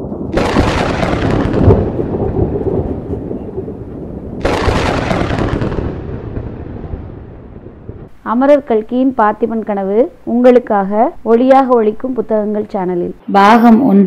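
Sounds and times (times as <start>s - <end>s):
loud crashes with low rumble: 0.0s - 8.1s.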